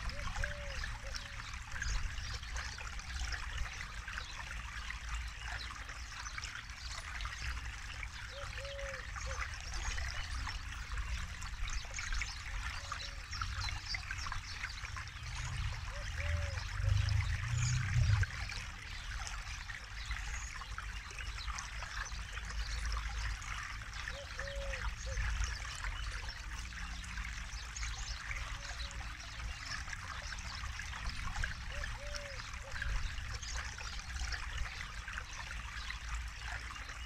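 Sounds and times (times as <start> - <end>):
river water flowing: 0.0 - 37.0
low rumble: 16.8 - 18.4.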